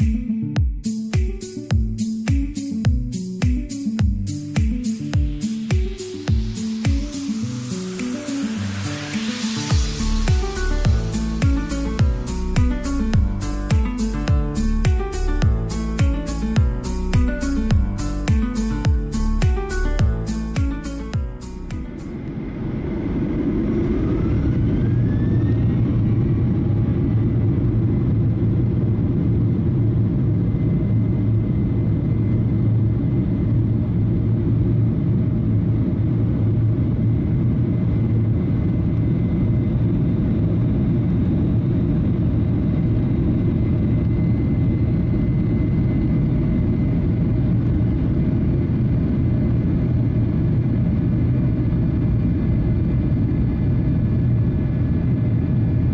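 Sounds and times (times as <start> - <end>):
faint rising whine: 1.6 - 50.8
jet engine cabin rumble: 22.1 - 55.9.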